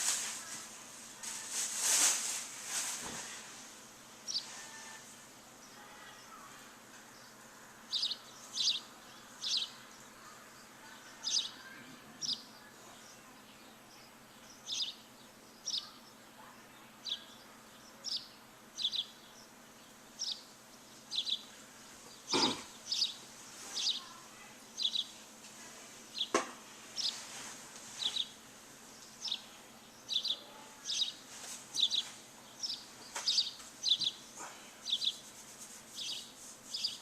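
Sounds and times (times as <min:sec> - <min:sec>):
faint steady hiss: 0:00.0 - 0:37.0
bird chirping: 0:04.2 - 0:05.0, 0:07.1 - 0:25.2, 0:26.1 - 0:27.2, 0:28.0 - 0:31.2, 0:31.8 - 0:37.0.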